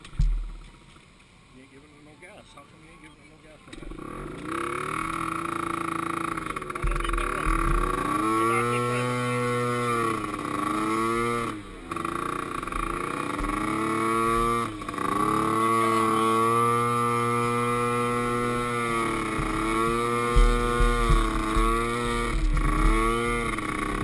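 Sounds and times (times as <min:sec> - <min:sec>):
atv engine revving: 0:02.8 - 0:24.0.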